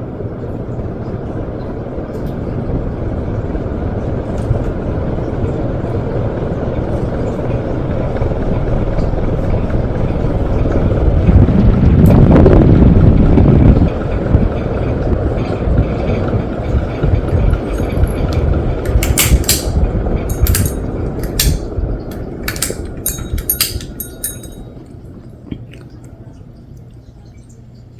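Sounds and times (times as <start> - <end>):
ceiling fan air rushing: 0.0 - 27.9
sharp clicks: 17.8 - 24.6.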